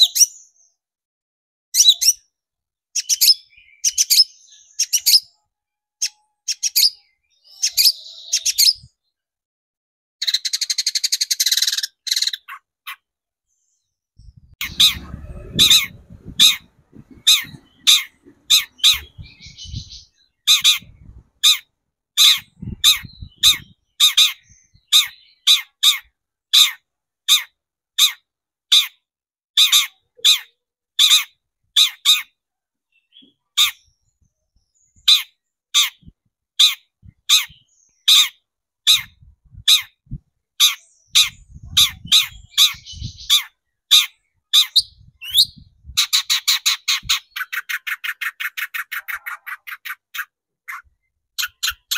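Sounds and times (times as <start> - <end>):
shrike singing: 14.6 - 21.6.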